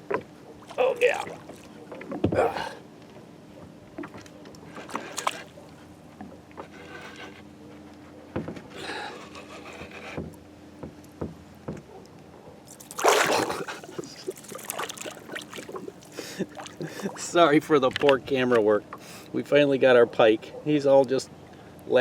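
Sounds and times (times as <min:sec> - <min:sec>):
water sounds: 0:00.0 - 0:02.8, 0:04.0 - 0:05.8, 0:12.7 - 0:18.1.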